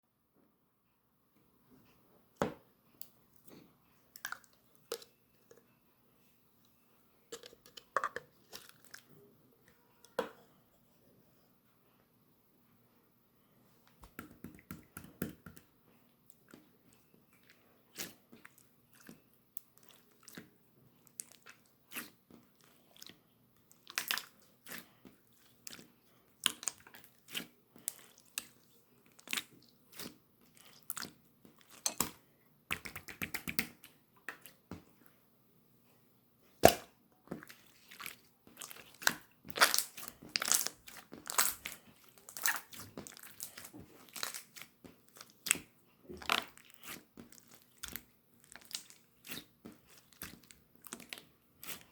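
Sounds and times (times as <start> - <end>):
slime squished by hand: 36.6 - 51.9.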